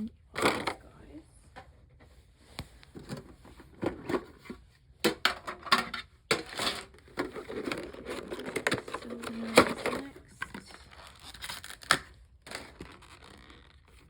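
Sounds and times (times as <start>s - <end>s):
plastic packaging crinkling: 6.6s - 14.0s.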